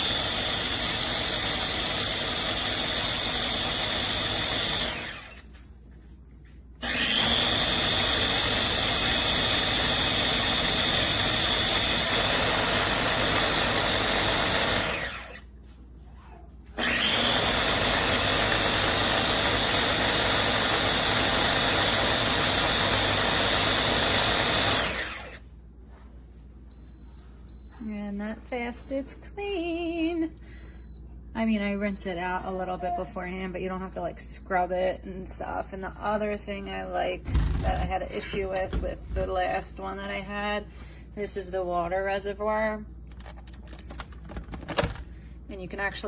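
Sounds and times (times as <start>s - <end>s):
blender motor whine: 0.0s - 5.5s, 6.8s - 15.5s, 16.8s - 25.5s, 37.2s - 38.0s.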